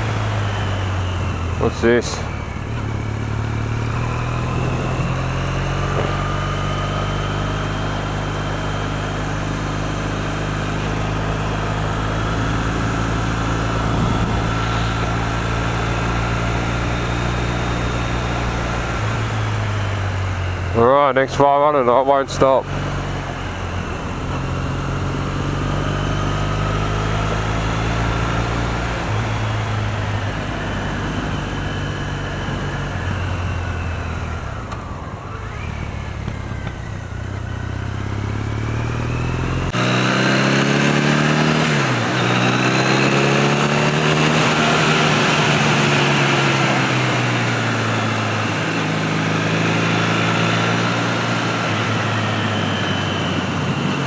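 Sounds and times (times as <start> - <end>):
motorcycle engine running: 0.0 - 54.0
wind noise: 4.2 - 6.4, 10.9 - 20.2.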